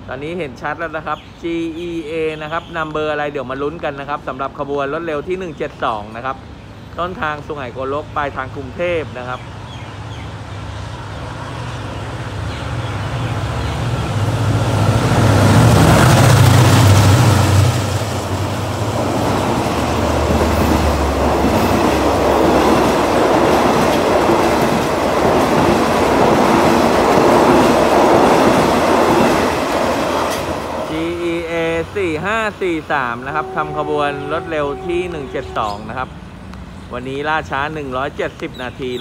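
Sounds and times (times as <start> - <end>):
diesel locomotive engine passing: 6.1 - 39.0
train wheels clattering on rails: 14.4 - 30.9.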